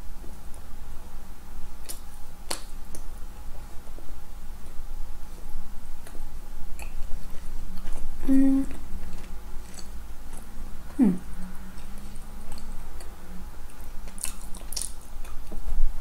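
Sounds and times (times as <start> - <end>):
person chewing soft food: 5.9 - 15.7
person humming mm: 8.2 - 8.8, 10.9 - 11.3
wet mouth clicks and lip smacks: 14.1 - 15.4.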